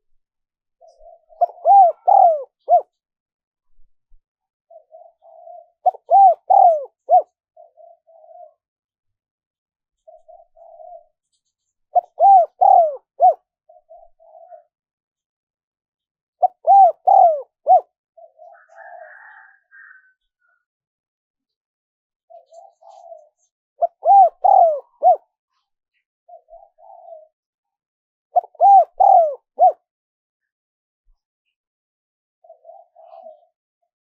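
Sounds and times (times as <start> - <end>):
dove cooing: 0.8 - 3.0, 4.7 - 8.6, 10.0 - 14.8, 16.4 - 20.6, 22.3 - 25.4, 26.3 - 27.4, 28.4 - 29.9, 32.4 - 33.6.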